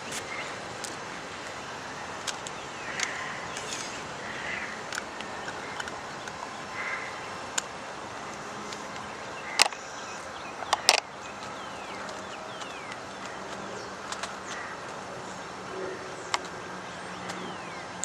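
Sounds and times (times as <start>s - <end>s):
birds chirping: 0.0s - 18.0s
sharp clicks or knocks: 10.6s - 11.1s.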